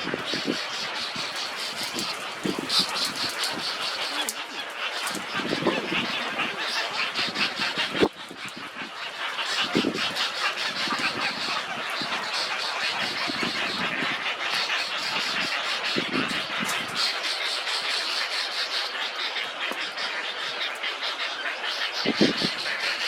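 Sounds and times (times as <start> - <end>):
low animal calls: 0.0 - 17.0
chorus of insects and birds: 0.0 - 23.0.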